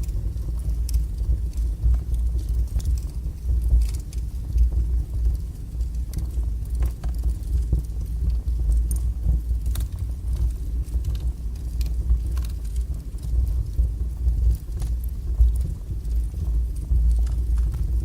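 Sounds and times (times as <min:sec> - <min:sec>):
burning logs crackling and popping: 0:00.0 - 0:18.0
low rumble of flames: 0:00.0 - 0:18.0.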